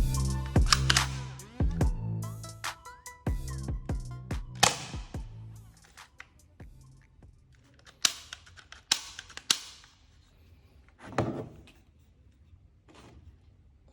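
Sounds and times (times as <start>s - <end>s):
toy pistol firing snaps: 4.6s - 5.0s, 7.9s - 10.0s
handling clicks: 4.6s - 5.1s, 7.6s - 10.0s.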